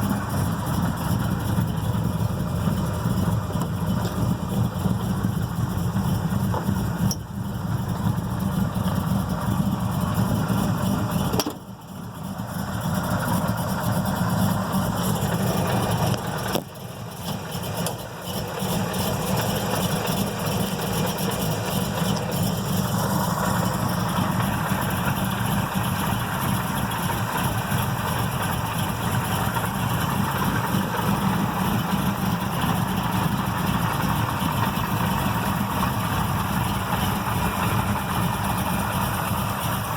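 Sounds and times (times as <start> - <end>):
car engine rough idling: 0.0 - 39.9.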